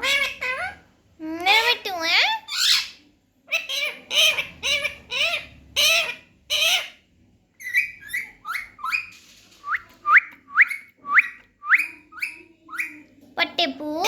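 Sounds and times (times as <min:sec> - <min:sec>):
parrot squawks: 0:00.0 - 0:00.8, 0:01.5 - 0:07.0, 0:07.6 - 0:09.1, 0:10.6 - 0:13.0
parrot chirps and whistles: 0:07.6 - 0:13.0.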